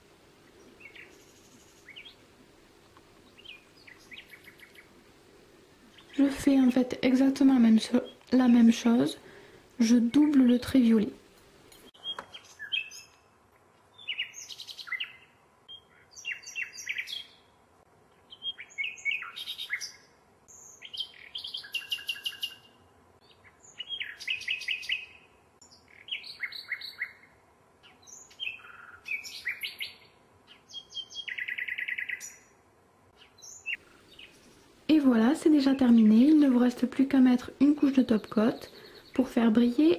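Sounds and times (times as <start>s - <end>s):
bird chirping and trilling: 0.5s - 2.2s, 3.2s - 5.0s, 12.0s - 13.3s, 14.0s - 17.5s, 18.2s - 32.5s, 33.2s - 35.0s, 35.6s - 39.9s.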